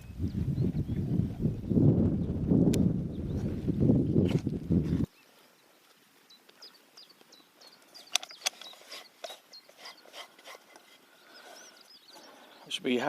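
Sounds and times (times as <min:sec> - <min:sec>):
faint bird chirps: 0:05.1 - 0:13.0.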